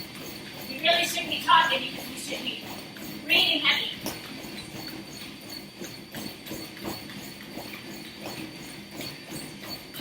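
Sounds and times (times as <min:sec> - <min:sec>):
running footfalls on treadmill: 0:00.0 - 0:10.0.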